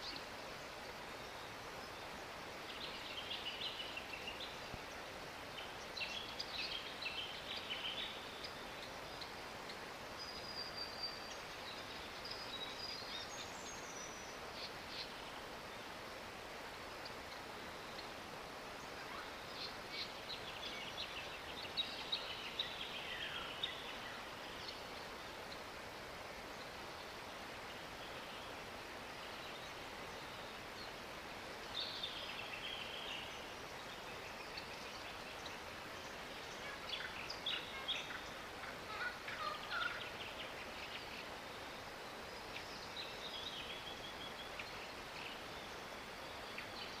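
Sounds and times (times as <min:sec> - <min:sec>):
steady outdoor hiss: 0:00.0 - 0:47.0
birds chattering and whistling: 0:31.8 - 0:41.3.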